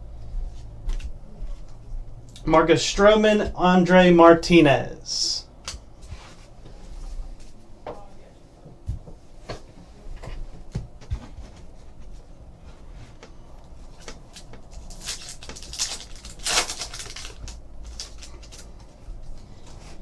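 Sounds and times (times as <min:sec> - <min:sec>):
card packs rustling and crinkling: 0:13.1 - 0:20.0.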